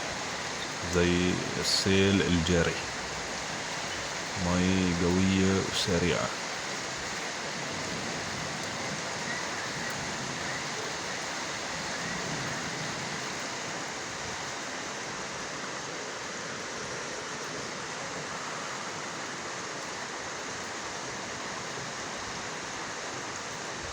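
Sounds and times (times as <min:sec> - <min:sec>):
heavy rain falling: 0:00.0 - 0:23.9
storm runoff rushing along street: 0:00.0 - 0:23.9.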